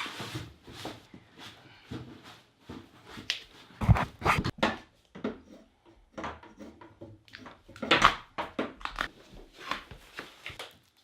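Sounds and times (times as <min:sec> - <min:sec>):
scraping and rubbing on plastic: 0:03.0 - 0:04.6.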